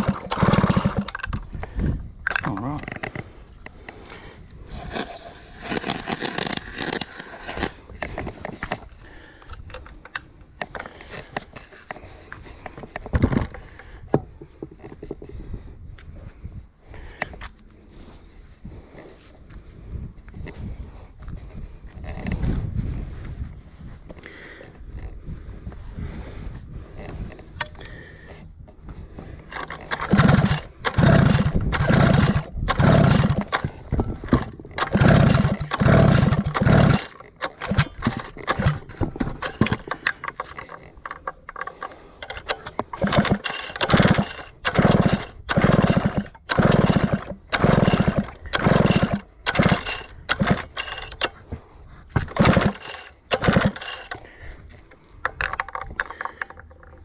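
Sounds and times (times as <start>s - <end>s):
chainsaw recoil starter pulls: 0.0s - 4.0s, 4.7s - 13.8s, 29.3s - 54.5s, 55.2s - 57.0s.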